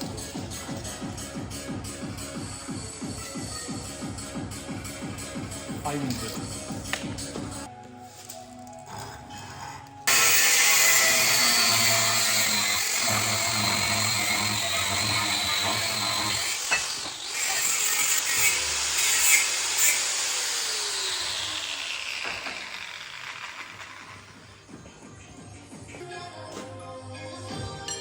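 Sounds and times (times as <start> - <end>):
power tool hissing whir: 10.1 - 24.6.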